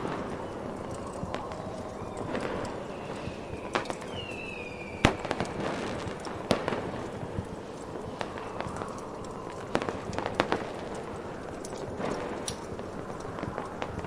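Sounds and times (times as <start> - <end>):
falling firework whistle: 0.0 - 7.4
firework bangs: 0.0 - 14.0
firework crackle: 0.0 - 14.0.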